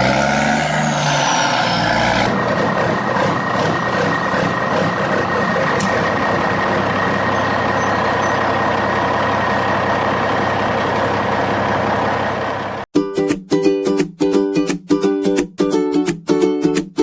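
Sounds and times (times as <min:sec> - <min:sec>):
vehicle engine running: 0:01.8 - 0:12.9.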